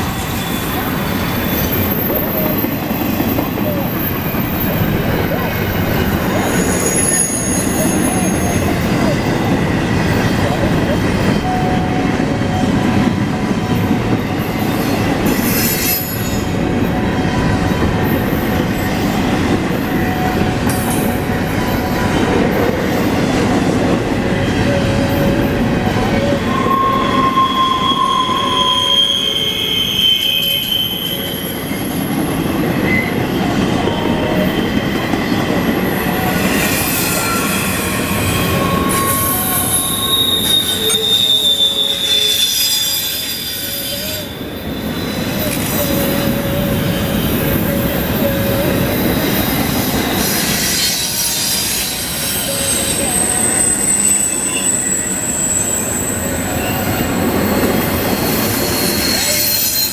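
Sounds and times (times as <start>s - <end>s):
high-pitched wheel squeals: 0.0s - 9.4s, 14.5s - 17.5s, 24.5s - 59.9s
steel wheels rumbling on rails: 0.0s - 59.9s.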